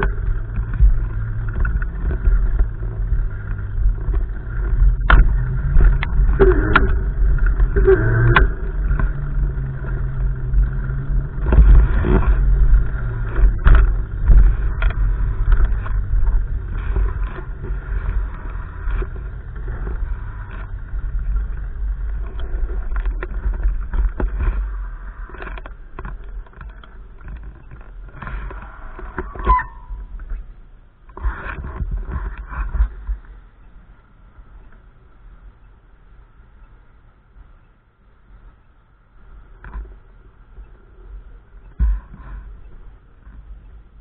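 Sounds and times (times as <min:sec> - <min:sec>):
wind buffeting microphone: 0:00.0 - 0:30.6.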